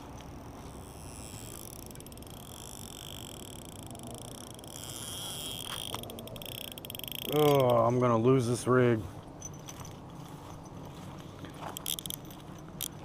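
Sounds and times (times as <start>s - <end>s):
frogs trilling: 0.0s - 7.8s.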